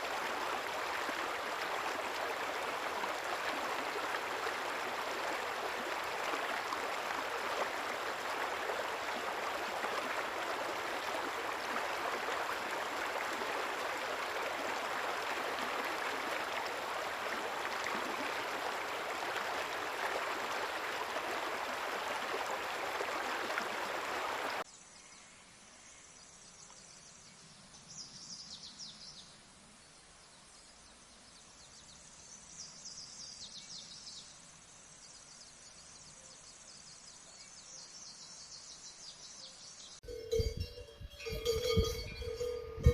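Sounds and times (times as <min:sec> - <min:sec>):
rushing water stream: 0:00.0 - 0:24.7.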